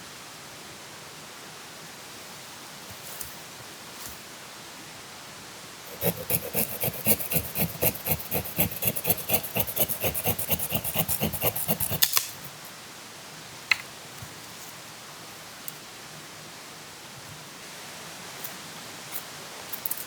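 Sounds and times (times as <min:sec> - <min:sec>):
hand saw cutting wood: 0:05.9 - 0:12.6.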